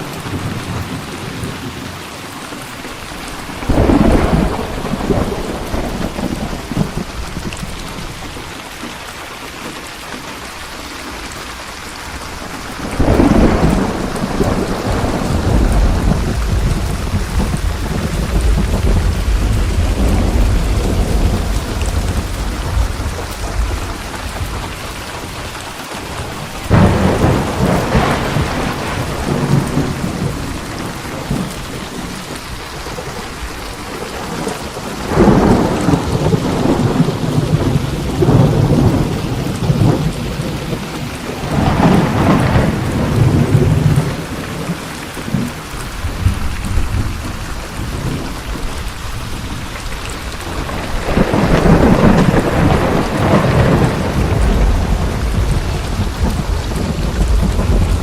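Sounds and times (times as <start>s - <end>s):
steady rain falling: 0.0s - 58.0s
thunder rumbling: 2.8s - 9.0s, 11.1s - 58.0s
thunder crack: 3.5s - 8.1s, 12.8s - 24.9s, 26.7s - 32.2s, 32.9s - 48.6s, 50.3s - 58.0s.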